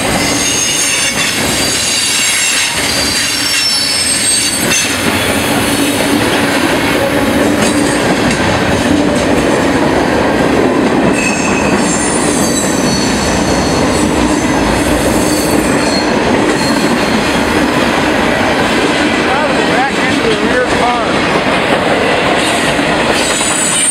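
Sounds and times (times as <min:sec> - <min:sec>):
freight train wheels rumbling: 0:00.0 - 0:23.9
high wheel squeals: 0:00.2 - 0:05.0, 0:15.2 - 0:17.2.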